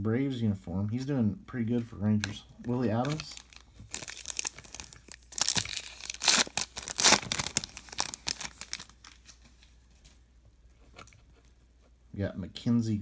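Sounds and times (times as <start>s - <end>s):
foil wrapper crinkling and tearing: 2.2s - 9.6s.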